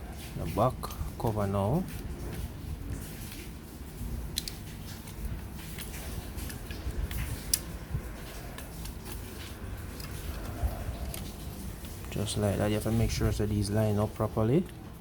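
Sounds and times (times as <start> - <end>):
plastic rubbing and handling: 0.0 - 15.0
plastic parts clicking together: 4.3 - 5.2.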